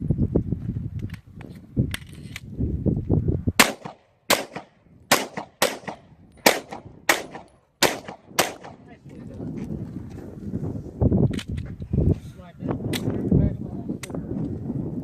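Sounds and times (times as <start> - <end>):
pistol shots with echo: 3.6 - 8.9.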